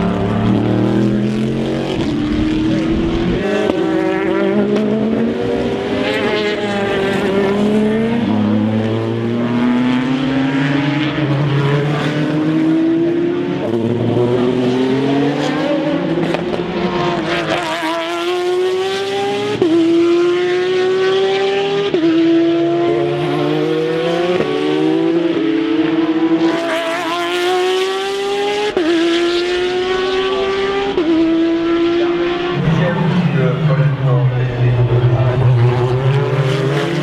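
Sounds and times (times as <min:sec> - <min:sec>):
race car engine accelerating: 0:00.0 - 0:37.0.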